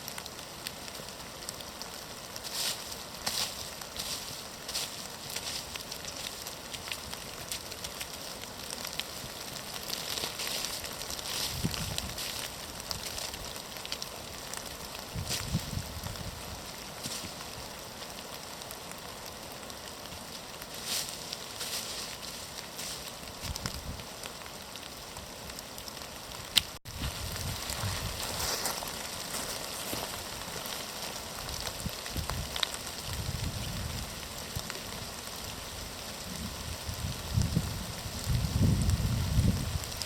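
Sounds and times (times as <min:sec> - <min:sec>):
rain pattering: 0:00.0 - 0:40.0
wind rumbling on microphone: 0:10.4 - 0:13.5, 0:14.9 - 0:17.8, 0:22.8 - 0:24.1, 0:26.3 - 0:40.0.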